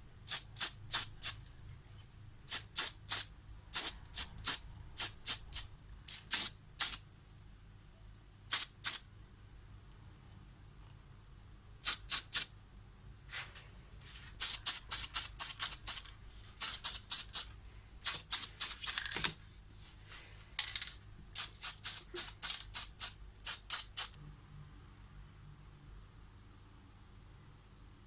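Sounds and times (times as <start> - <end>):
spray can ball rattling: 0.3 - 1.5, 2.5 - 7.0, 8.5 - 9.0, 14.4 - 19.3, 20.6 - 24.2.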